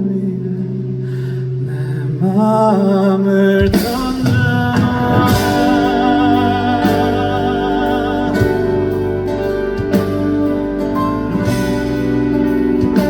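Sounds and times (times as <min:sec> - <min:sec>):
live band playing a ballad: 0:00.0 - 0:13.0
drum hits: 0:03.6 - 0:10.6.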